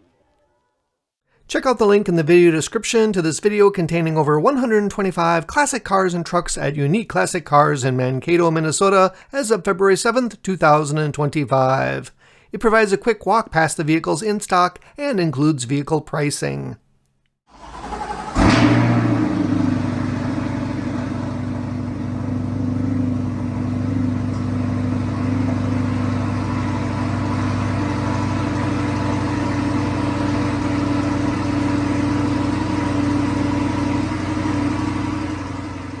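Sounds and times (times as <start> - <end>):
car engine idling: 17.5 - 36.0.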